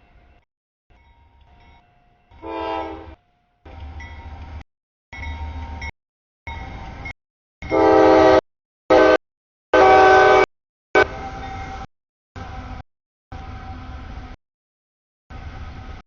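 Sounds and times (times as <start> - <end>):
train rumble: 0.0 - 4.6, 9.8 - 14.4, 15.3 - 16.0
locomotive horn: 2.4 - 3.2, 7.6 - 11.3.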